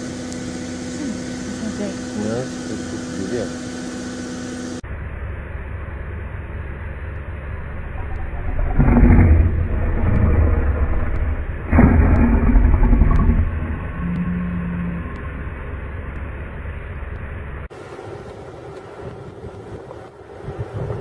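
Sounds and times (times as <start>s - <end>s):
vehicle engine idling: 0.0s - 17.7s
loud deep pitched sounds: 7.3s - 17.7s.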